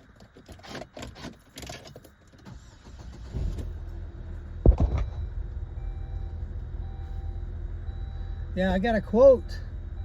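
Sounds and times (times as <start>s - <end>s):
loud thump: 4.6s - 5.2s.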